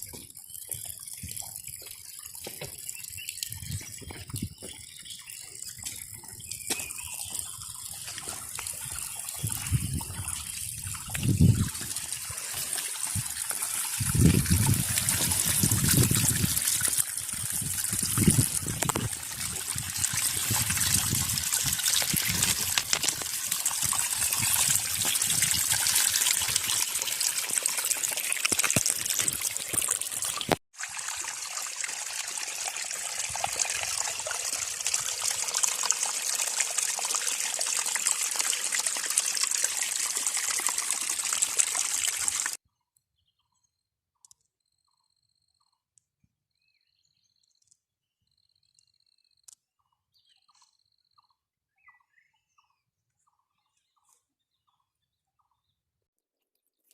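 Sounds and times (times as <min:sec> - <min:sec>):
rushing water: 0:00.0 - 0:42.6.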